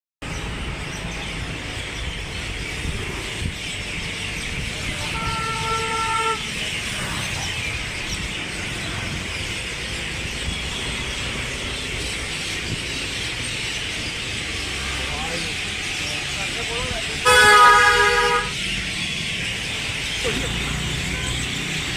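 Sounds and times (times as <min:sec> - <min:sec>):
birds chirping: 0:00.2 - 0:21.9
horn sounding: 0:04.9 - 0:06.8, 0:17.2 - 0:18.6.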